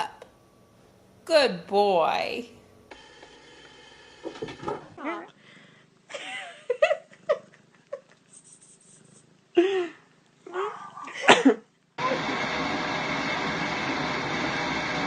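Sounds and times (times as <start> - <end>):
pet animal calling: 4.9 - 5.4.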